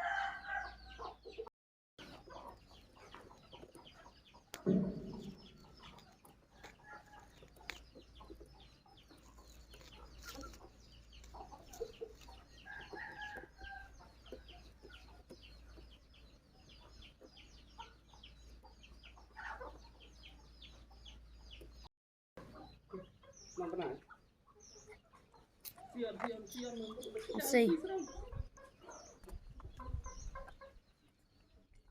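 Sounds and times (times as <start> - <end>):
nestling birds cheeping: 0.0 - 31.6
loud thump: 4.6 - 5.8.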